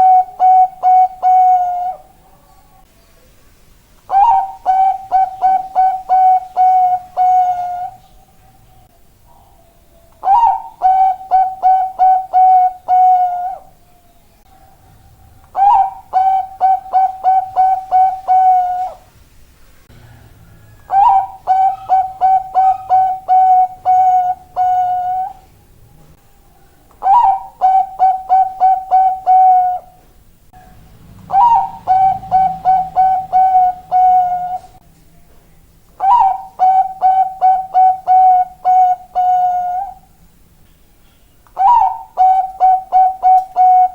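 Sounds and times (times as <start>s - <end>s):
dove cooing song: 0.0s - 3.2s, 4.1s - 19.1s, 19.9s - 34.8s, 36.0s - 40.3s, 41.5s - 43.9s.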